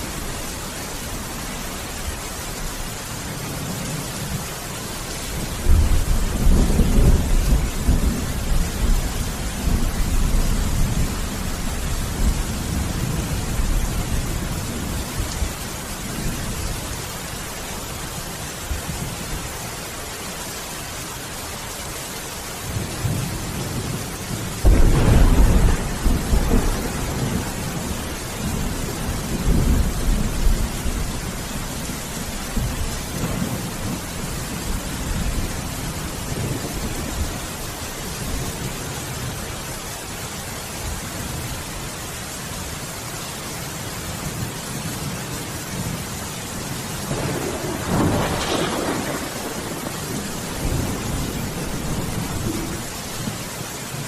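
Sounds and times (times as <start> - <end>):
heavy rain: 0.0 - 54.0
thunder clap rumbling: 5.5 - 15.4, 23.0 - 32.0, 47.0 - 53.2.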